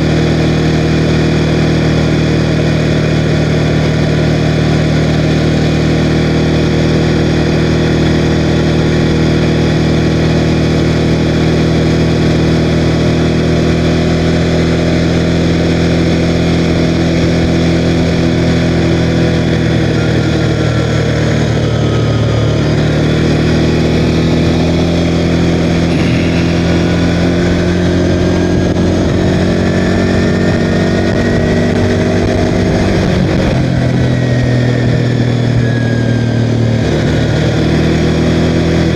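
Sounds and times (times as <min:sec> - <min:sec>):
atv engine running: 0:17.6 - 0:33.6.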